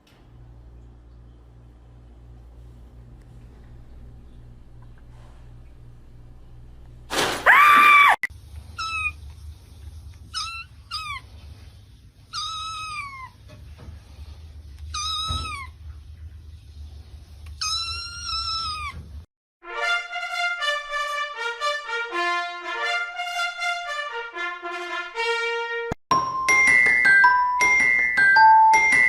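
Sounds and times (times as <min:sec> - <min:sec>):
kitten meowing: 0:10.3 - 0:11.2, 0:12.3 - 0:13.4, 0:17.6 - 0:19.0.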